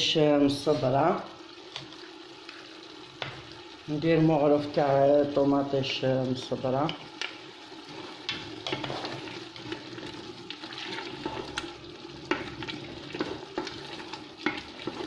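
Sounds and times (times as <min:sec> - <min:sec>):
vegetables sizzling in oil: 0:00.0 - 0:15.0
spoon scraping and knocking pot: 0:08.2 - 0:09.8.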